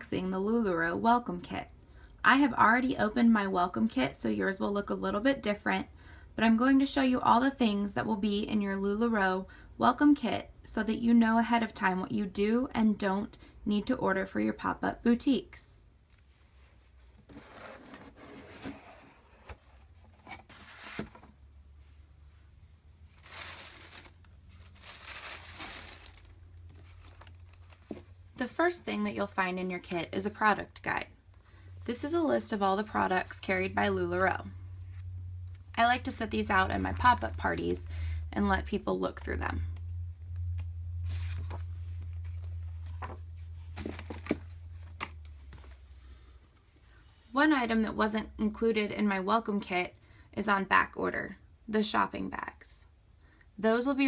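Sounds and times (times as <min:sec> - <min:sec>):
steady low hum: 0:15.8 - 0:48.8
paper and packaging rustling: 0:16.9 - 0:21.3, 0:23.0 - 0:28.4, 0:41.0 - 0:45.9.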